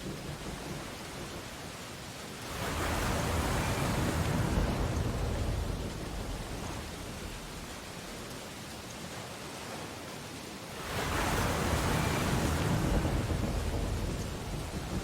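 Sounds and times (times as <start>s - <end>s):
surf washing on beach: 0.0s - 15.0s
wave breaking: 10.8s - 15.0s.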